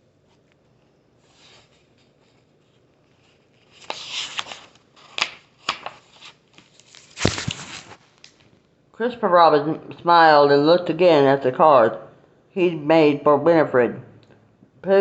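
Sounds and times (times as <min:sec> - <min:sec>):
paper rustling and crinkling: 0:01.3 - 0:08.6.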